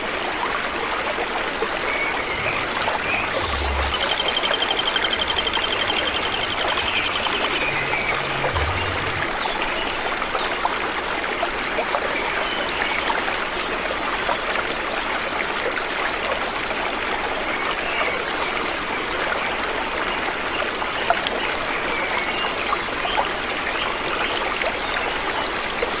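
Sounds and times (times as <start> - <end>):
running water: 0.0 - 26.0
bird chirps: 2.3 - 9.5
fast pulsing high trill: 3.4 - 8.7.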